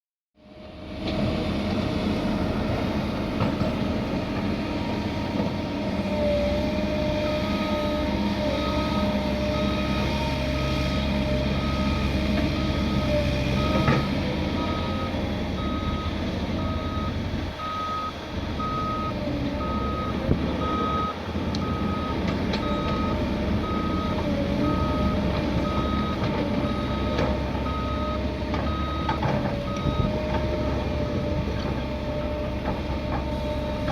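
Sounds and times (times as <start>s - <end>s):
diesel machinery running under load: 0.4s - 33.9s
reversing alarm beeping: 7.2s - 31.0s.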